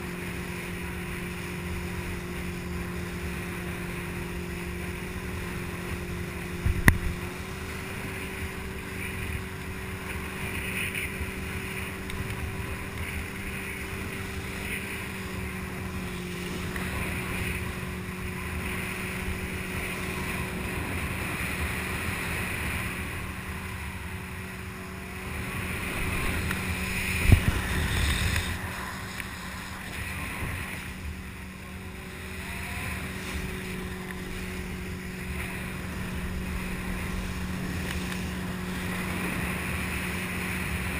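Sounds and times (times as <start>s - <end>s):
motorboat engine drone: 0.0s - 40.9s
rushing water: 0.0s - 40.9s
wind buffeting the microphone: 5.2s - 9.9s, 11.2s - 40.9s.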